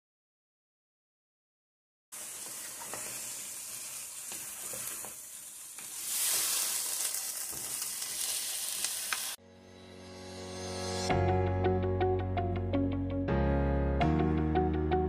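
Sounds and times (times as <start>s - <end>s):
food sizzling in a hot pan: 2.1s - 9.4s
wooden spatula scraping a pan: 2.4s - 3.3s
music: 9.4s - 15.0s.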